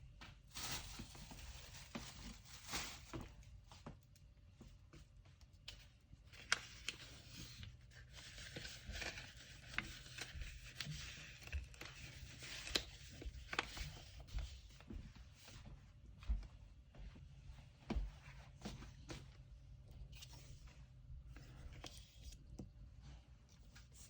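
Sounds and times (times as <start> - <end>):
paper rustling: 0.4 - 3.4, 5.7 - 14.6.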